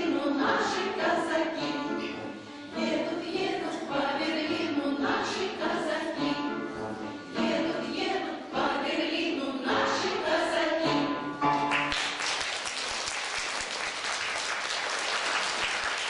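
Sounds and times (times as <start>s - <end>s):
choir singing: 0.0s - 11.2s
audience applause: 11.7s - 16.0s.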